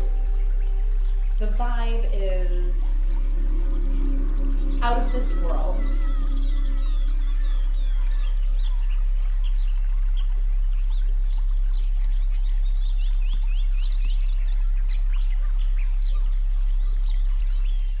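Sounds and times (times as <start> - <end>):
bird chirps: 0.0 - 18.0
deep hum: 0.0 - 18.0
high insect-like hiss: 0.0 - 18.0.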